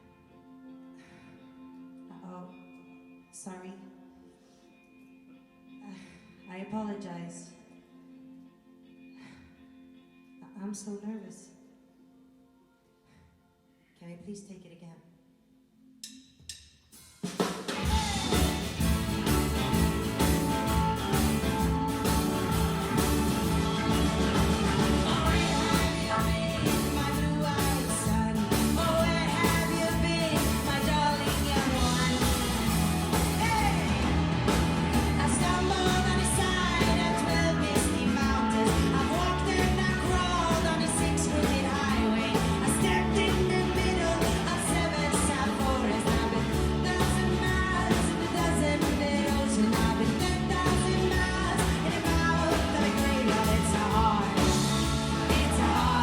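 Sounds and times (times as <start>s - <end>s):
rock band playing: 16.9s - 56.0s
person singing: 17.8s - 56.0s.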